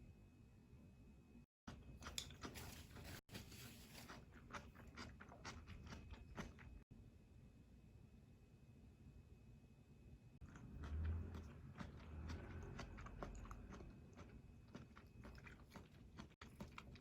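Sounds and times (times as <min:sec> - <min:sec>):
chewing and crunching food: 0:01.6 - 0:06.9, 0:10.4 - 0:17.0.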